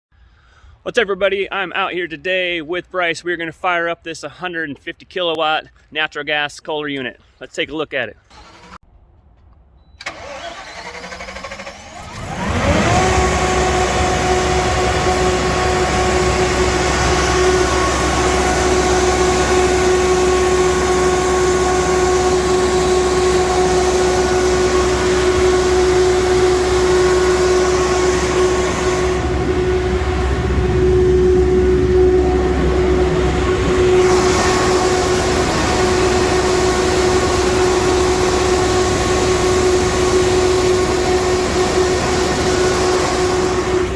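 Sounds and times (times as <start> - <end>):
generator engine cranking and running: 8.2 - 9.0, 10.0 - 43.9.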